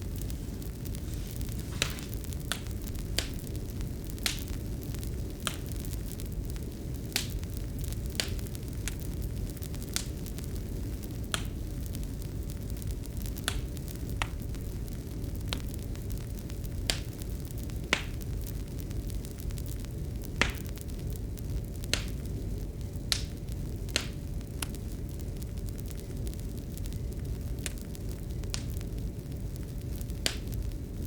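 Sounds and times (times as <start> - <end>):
low rumble: 0.0 - 6.9
fire crackling and popping: 0.0 - 31.0.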